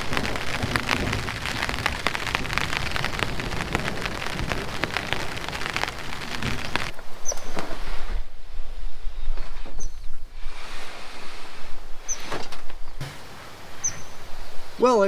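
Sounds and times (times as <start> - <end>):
raindrops ticking on surface: 0.0 - 7.9
steady rain: 0.0 - 15.0.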